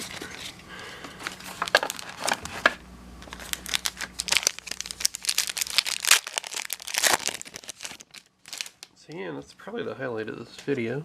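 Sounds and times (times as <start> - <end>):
plastic wrapper crinkling and tearing: 1.4 - 9.0.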